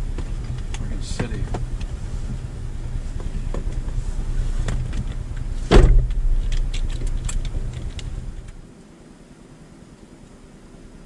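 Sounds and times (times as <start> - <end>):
vehicle engine idling: 0.0 - 11.0
loud thump: 5.7 - 6.4.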